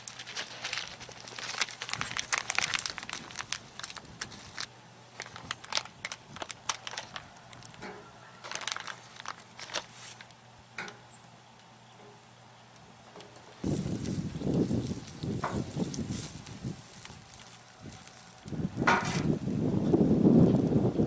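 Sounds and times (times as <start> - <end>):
wood fire crackling and popping: 0.0 - 7.9, 12.7 - 21.0.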